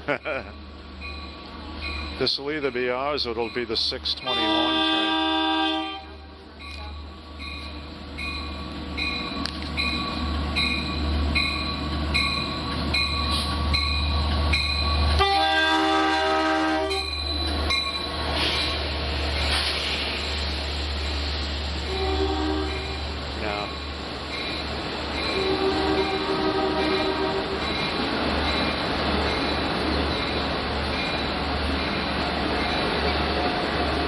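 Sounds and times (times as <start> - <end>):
diesel locomotive engine rumble: 0.0 - 34.0
wheel and rail noise: 0.0 - 34.0
locomotive bell ringing: 0.1 - 5.0, 6.3 - 19.6, 22.0 - 34.0
train horn blast: 4.3 - 6.4, 15.2 - 17.1, 21.8 - 23.0, 25.4 - 27.6.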